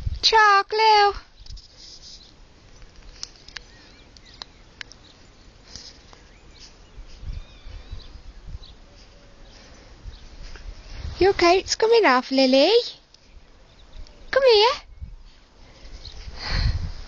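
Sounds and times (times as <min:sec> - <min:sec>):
small birds chirping: 0:00.9 - 0:16.4
sharp clicks: 0:02.7 - 0:05.0.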